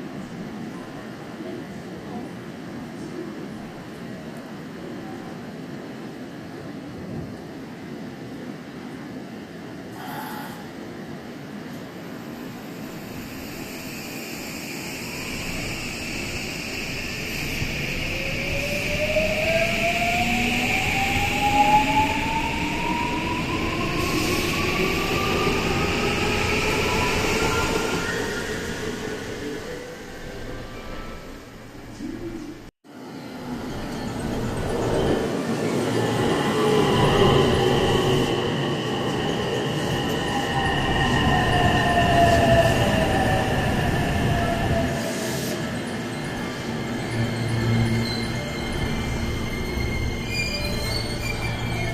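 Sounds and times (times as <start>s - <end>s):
high squealing tones: 45.6s - 51.9s.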